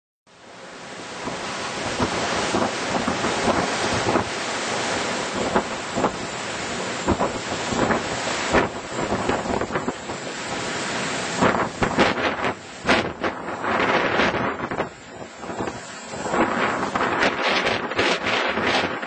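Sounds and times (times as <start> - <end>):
gusty wind buffeting microphone: 1.0 - 19.0.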